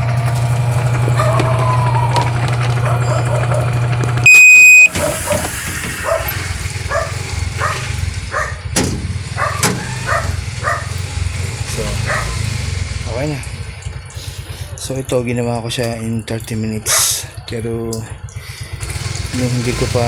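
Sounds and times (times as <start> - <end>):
washing machine humming: 0.0 - 20.0
dog barking: 1.1 - 3.9, 4.8 - 8.7, 9.3 - 11.1, 11.8 - 12.6, 16.8 - 17.5
electronic beep: 4.2 - 4.9.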